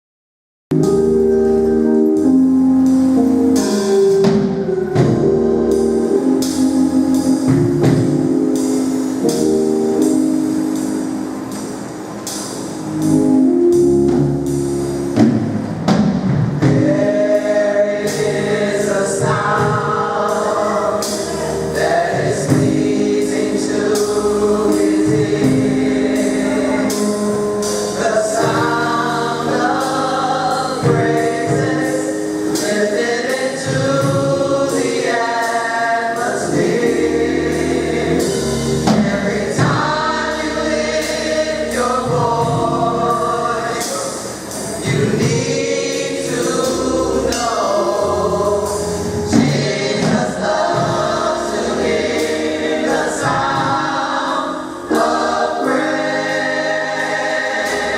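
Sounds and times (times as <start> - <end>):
choir singing gospel: 0.8 - 57.9
percussion steady beat: 2.2 - 57.9.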